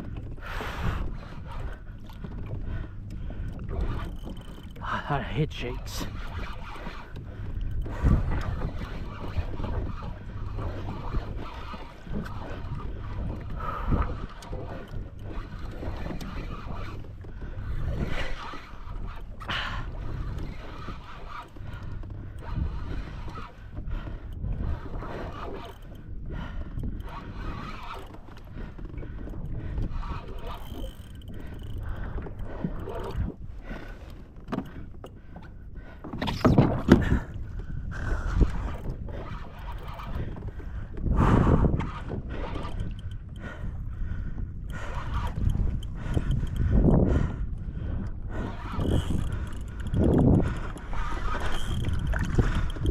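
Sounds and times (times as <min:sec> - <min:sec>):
water lapping against kayak: 0:00.0 - 0:52.9
wind buffeting microphone: 0:00.0 - 0:52.9
kayak bumps: 0:36.0 - 0:37.5.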